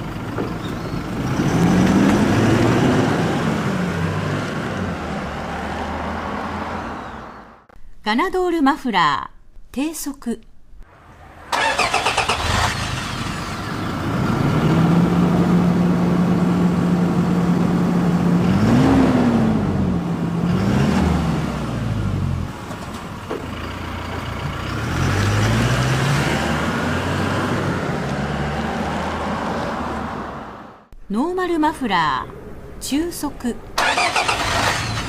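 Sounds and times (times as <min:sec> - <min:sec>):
diesel exhaust drone: 0:00.0 - 0:07.7, 0:10.9 - 0:30.5.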